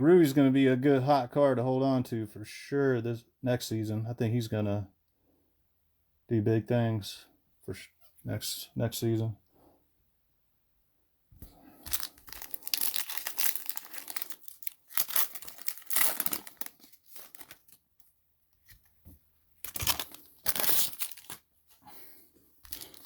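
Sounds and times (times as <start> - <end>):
plastic wrappers tearing and crinkling: 11.8 - 18.8, 19.6 - 21.5, 22.6 - 23.0.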